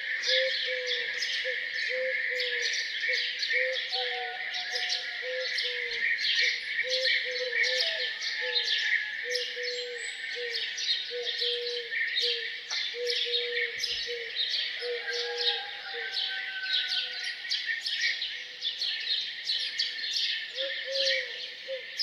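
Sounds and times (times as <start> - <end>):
songbirds chirping and singing: 0.0 - 22.0.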